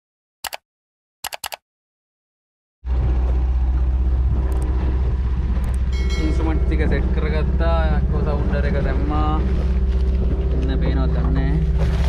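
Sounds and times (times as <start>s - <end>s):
short clicks: 0.4s - 0.6s, 1.2s - 1.6s
boat motor running: 2.8s - 12.0s
wind rumble on microphone: 2.9s - 12.0s.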